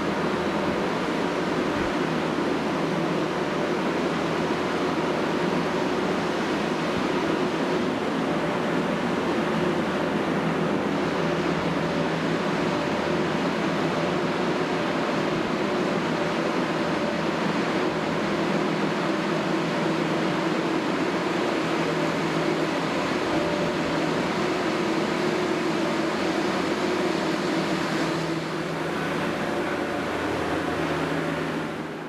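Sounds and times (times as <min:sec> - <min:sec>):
diesel engine running: 0:25.7 - 0:32.0.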